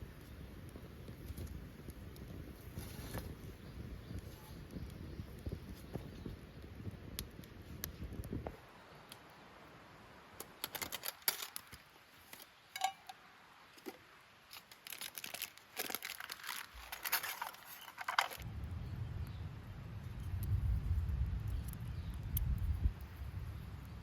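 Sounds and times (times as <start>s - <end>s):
twigs crackling in fire: 0.0s - 9.5s, 10.2s - 18.8s, 20.0s - 24.0s
low rumble: 18.4s - 23.6s.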